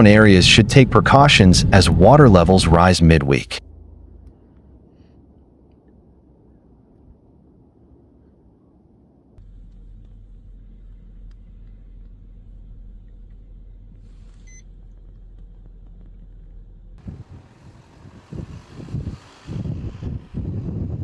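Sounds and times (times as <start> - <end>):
wind gusts buffeting microphone: 0.0 - 3.0, 17.0 - 21.0
low vehicle rumble: 0.0 - 21.0.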